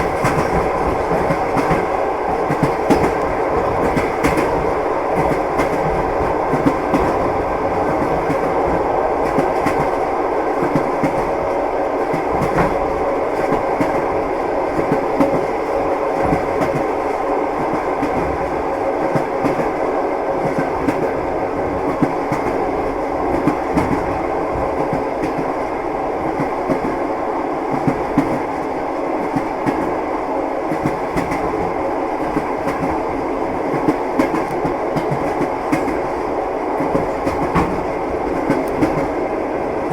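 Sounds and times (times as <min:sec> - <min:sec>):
train wheels clattering over rails: 0:00.0 - 0:17.0, 0:30.7 - 0:39.9.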